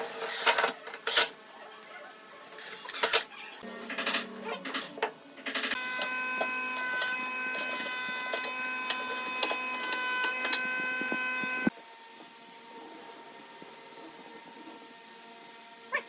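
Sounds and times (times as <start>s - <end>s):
power tool whining: 2.6s - 11.7s.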